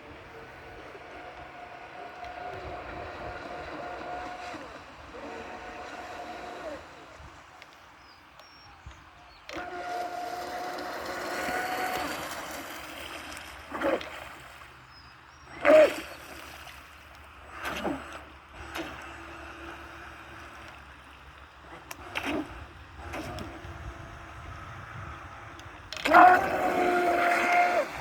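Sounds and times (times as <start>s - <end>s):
model boat electric motors whining: 0.0s - 28.0s.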